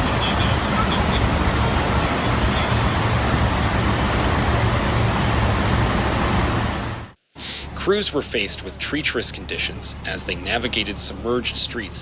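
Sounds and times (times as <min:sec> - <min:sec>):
heavy rain pouring: 0:00.0 - 0:07.2.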